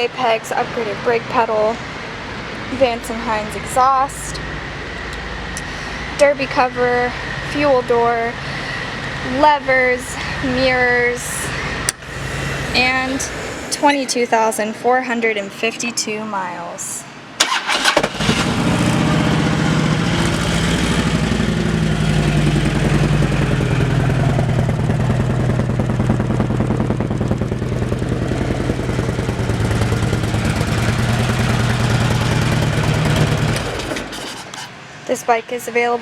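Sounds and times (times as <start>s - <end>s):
motorcycle engine idling: 17.8s - 34.4s.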